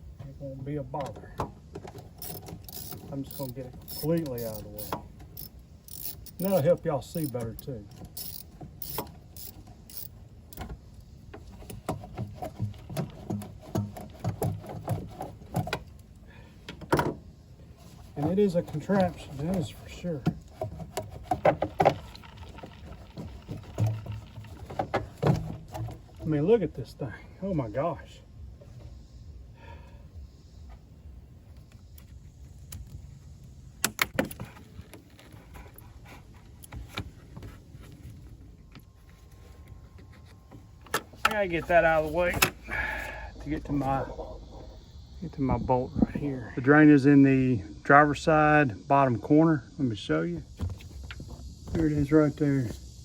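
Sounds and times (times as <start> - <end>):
tools and plastic parts clicking: 1.7 - 11.0.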